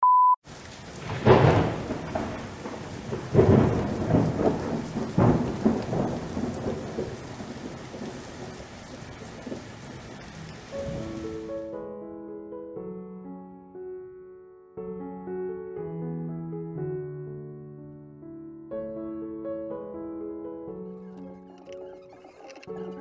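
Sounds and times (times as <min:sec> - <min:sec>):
short steady beep: 0:00.0 - 0:00.4
steady rain: 0:00.4 - 0:11.8, 0:21.0 - 0:23.0
thunder rumbling: 0:00.5 - 0:11.6.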